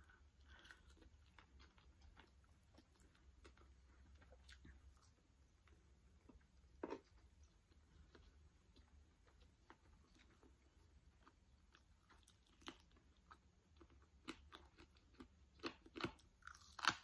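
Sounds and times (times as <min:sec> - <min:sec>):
soft chewing: 0:00.0 - 0:17.0.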